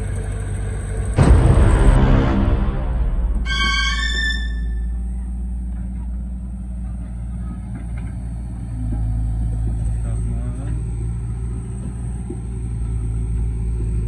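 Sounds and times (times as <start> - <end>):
engine droning: 0.0 - 14.0
brief high tone: 3.4 - 5.2.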